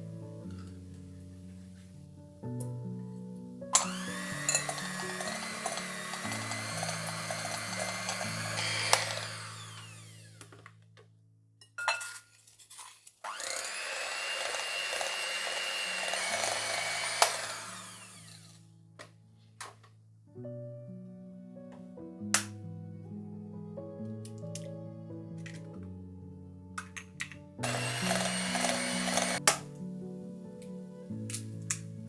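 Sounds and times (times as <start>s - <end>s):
soft background music: 0.0s - 10.4s, 13.3s - 32.0s
kitchen appliance motor whirring: 3.8s - 10.7s, 13.2s - 18.6s, 27.6s - 29.6s.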